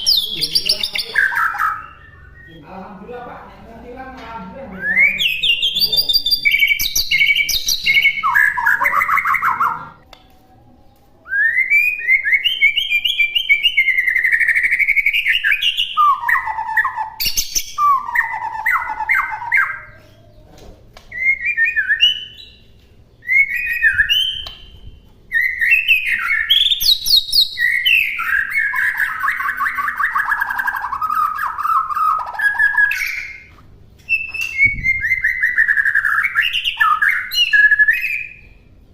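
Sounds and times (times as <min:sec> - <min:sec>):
songbird singing varied song: 0:00.0 - 0:02.7, 0:04.8 - 0:10.0.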